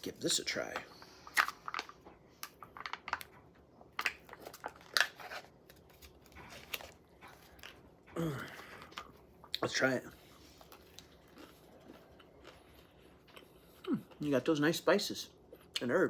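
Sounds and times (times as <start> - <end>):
paper packaging crinkling: 4.0 - 7.8.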